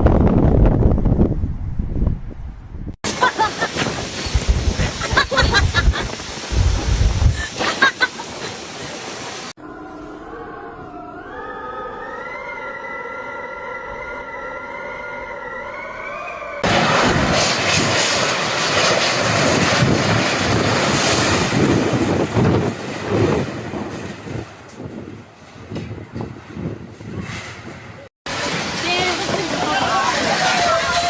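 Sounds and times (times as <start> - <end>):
storm wind buffeting microphone: 0.0 - 9.5, 16.6 - 31.0
whistling tone: 10.8 - 16.6.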